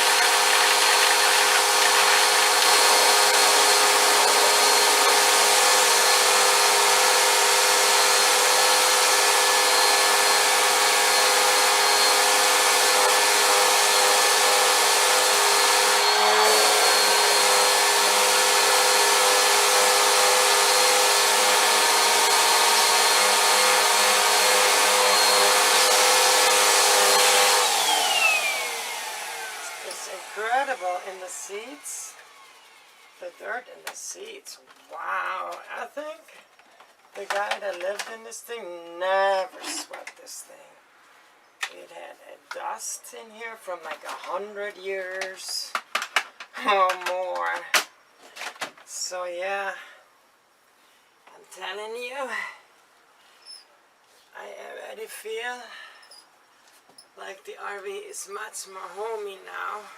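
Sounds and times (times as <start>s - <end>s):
vacuum cleaner motor whining: 0.0s - 33.3s.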